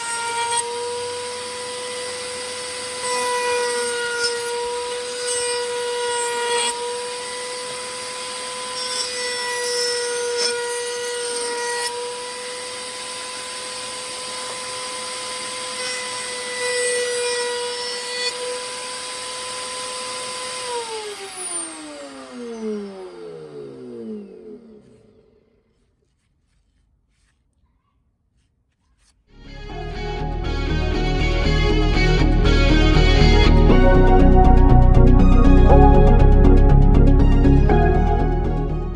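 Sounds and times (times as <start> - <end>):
saw blade spinning down: 0.0 - 25.7
table saw whining: 0.0 - 25.8, 29.3 - 38.9
saw cutting wood: 0.0 - 27.5, 28.4 - 38.9.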